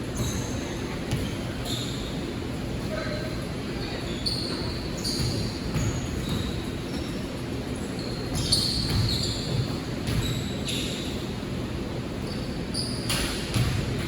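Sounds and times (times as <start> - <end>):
sneakers squeaking on floor: 0.1 - 14.0
basketball bouncing on court: 0.2 - 1.6, 5.0 - 7.1, 8.3 - 10.6, 13.1 - 14.0.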